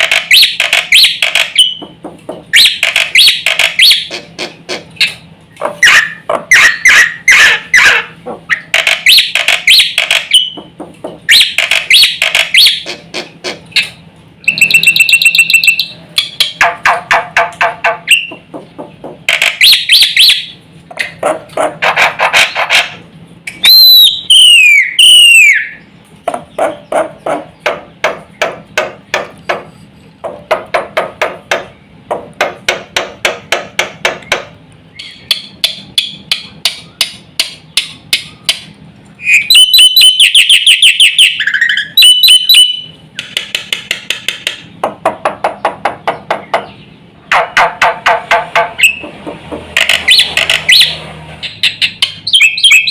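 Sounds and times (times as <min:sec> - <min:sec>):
bird clicking chatter: 0:00.0 - 0:23.7, 0:42.0 - 0:46.7, 0:47.3 - 0:50.9
bird whistles: 0:14.4 - 0:16.0, 0:19.6 - 0:20.5, 0:23.5 - 0:25.8, 0:39.2 - 0:43.0, 0:51.6 - 0:52.9.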